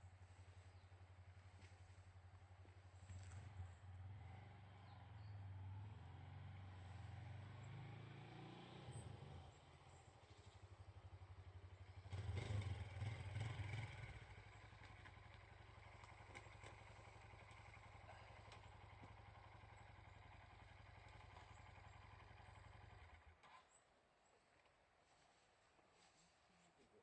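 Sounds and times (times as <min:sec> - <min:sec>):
vehicle engine throbbing: 0:10.2 - 0:23.2.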